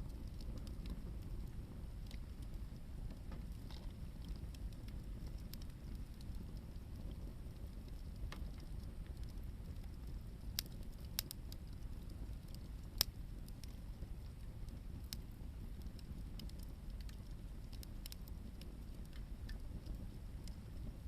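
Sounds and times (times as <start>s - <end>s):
campfire crackling and popping: 0.0s - 21.0s
low steady fire rumble: 0.0s - 21.0s.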